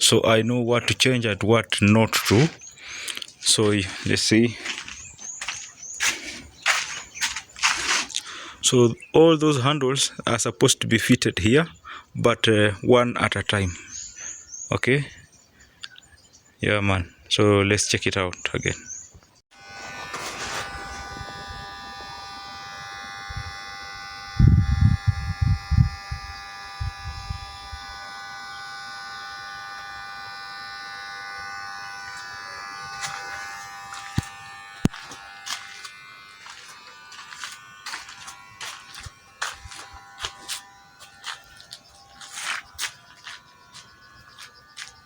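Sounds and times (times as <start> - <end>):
electrical buzzing hum: 0.0 - 10.1, 19.5 - 45.0.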